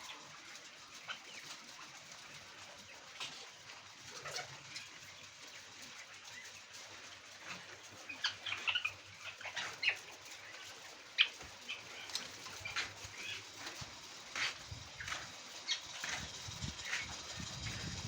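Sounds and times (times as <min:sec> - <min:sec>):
quails chirping: 0:04.1 - 0:18.0.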